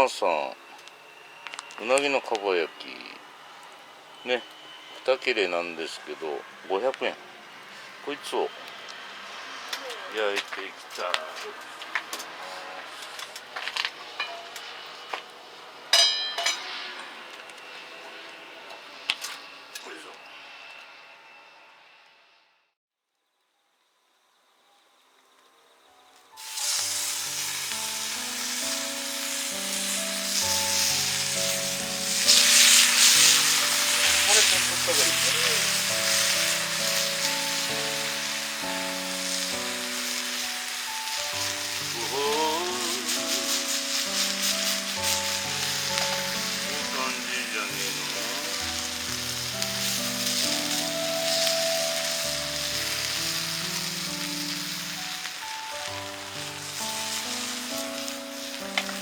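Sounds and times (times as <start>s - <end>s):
eel sizzling on a grill: 0.0s - 12.3s, 26.4s - 59.0s
background music of sustained notes: 0.0s - 22.4s, 25.6s - 59.0s
loud ringing metal clink: 16.0s - 16.7s
metal cookware clinking and clattering: 16.0s - 16.7s.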